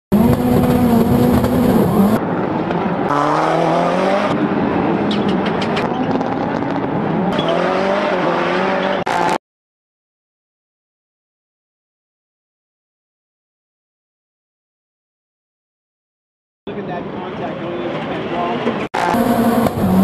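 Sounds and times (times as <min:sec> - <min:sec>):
race car engine revving: 0:00.1 - 0:09.4, 0:18.7 - 0:20.0.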